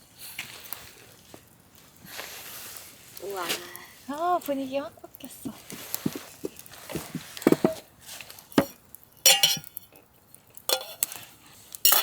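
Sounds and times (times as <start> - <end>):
dishes and glasses clinking: 9.3 - 9.8, 10.7 - 11.0.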